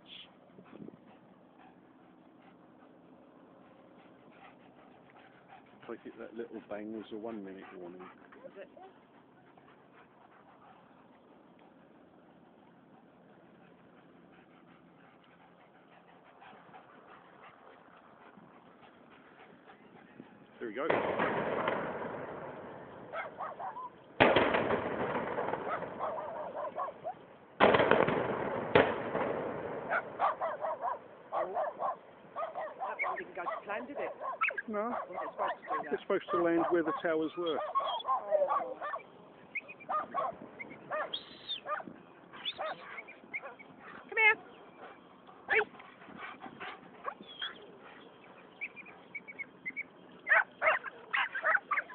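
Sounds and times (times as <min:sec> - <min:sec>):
demolition explosions: 0:20.9 - 0:22.7, 0:24.2 - 0:26.0, 0:27.6 - 0:30.2
birds calling: 0:29.9 - 0:51.9.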